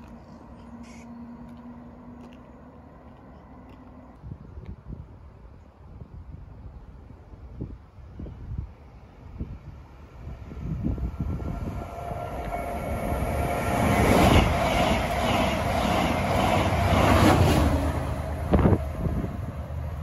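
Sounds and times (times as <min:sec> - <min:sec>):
passenger train passing: 0:00.0 - 0:05.5, 0:06.3 - 0:20.0.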